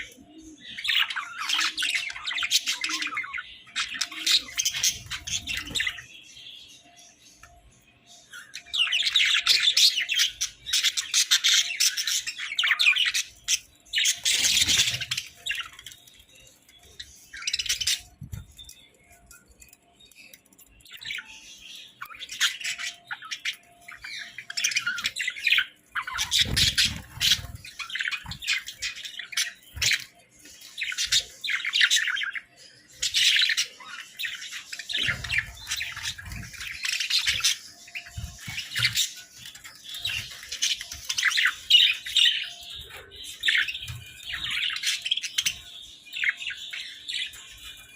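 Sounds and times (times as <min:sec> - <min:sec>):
budgerigars chattering: 0:21.0 - 0:30.1.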